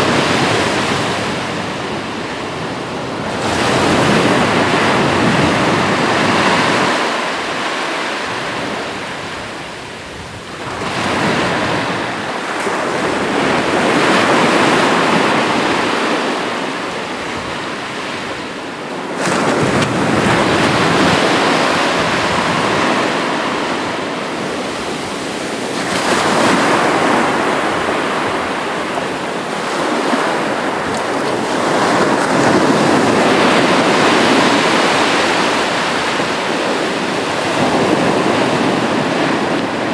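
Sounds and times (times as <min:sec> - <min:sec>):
sea waves breaking: 0:10.6 - 0:39.9.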